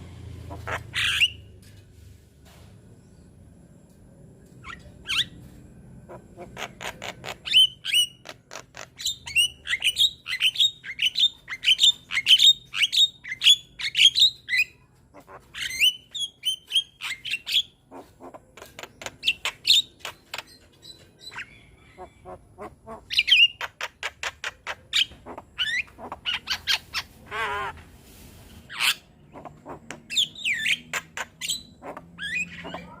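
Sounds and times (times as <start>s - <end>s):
myna bird singing: 4.6s - 27.7s, 28.7s - 33.0s.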